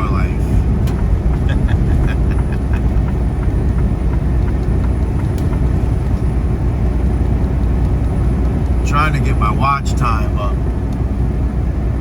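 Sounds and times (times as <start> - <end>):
truck engine and tyre noise: 0.0 - 12.0.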